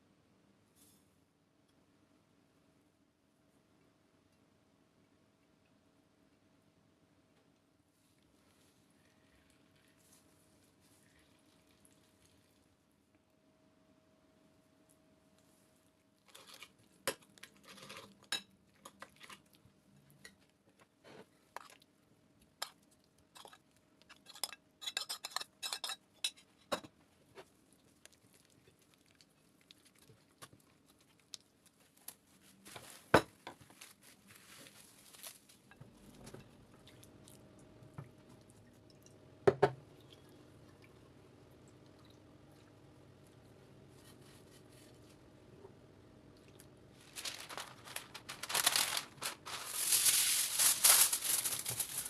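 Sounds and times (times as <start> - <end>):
dishes and utensils clinking: 23.4 - 27.0
low steady hum: 33.7 - 52.0.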